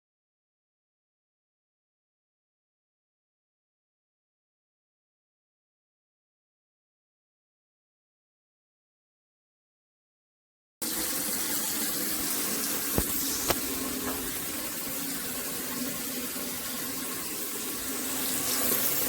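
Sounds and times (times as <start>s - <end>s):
tap water running into basin: 10.8s - 19.0s.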